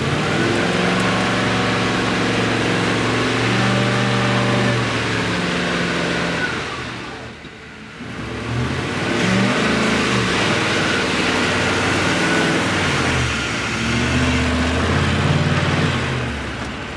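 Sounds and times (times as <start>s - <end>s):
vehicle engine accelerating: 0.0s - 7.4s, 8.0s - 16.9s.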